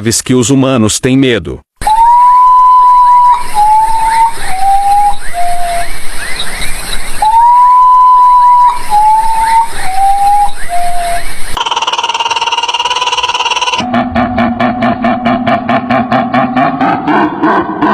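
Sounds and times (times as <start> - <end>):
bird whistled call: 1.8 - 13.8.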